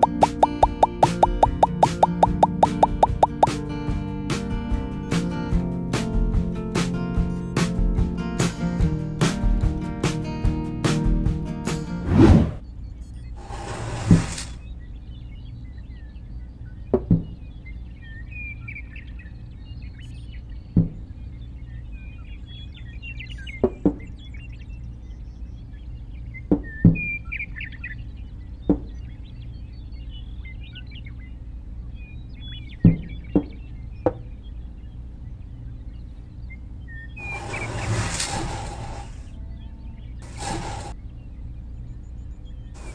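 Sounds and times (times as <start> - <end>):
birds chirping: 0.0 - 3.5.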